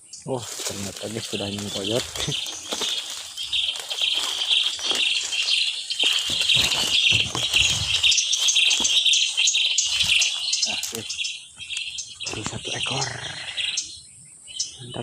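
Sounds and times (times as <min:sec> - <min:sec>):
small birds chirping: 0:00.0 - 0:15.0
rustling: 0:00.4 - 0:11.2
high insect-like drone: 0:00.5 - 0:11.5.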